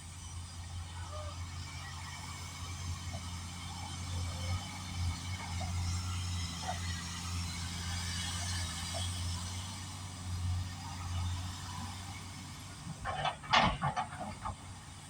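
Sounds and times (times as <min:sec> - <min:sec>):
excavator diesel engine humming: 0:00.0 - 0:15.0
loud clatter: 0:13.0 - 0:14.6.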